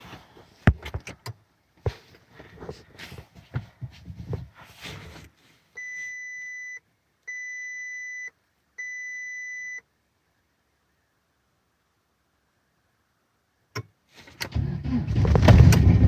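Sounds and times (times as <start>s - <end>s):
handling knocks and rustling: 0.0s - 5.4s.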